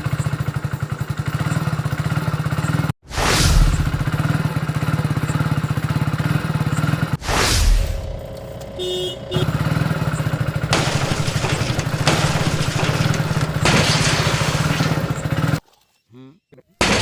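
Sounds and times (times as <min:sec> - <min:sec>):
small engine chugging: 0:00.0 - 0:02.9, 0:04.2 - 0:07.2, 0:08.4 - 0:15.6
loud whoosh: 0:03.0 - 0:04.5, 0:07.2 - 0:08.3.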